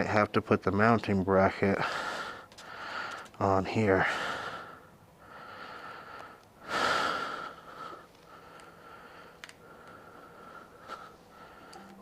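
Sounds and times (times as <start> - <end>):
man breathing through nose: 1.8 - 3.4, 4.0 - 11.9
faint clicks: 9.4 - 10.0.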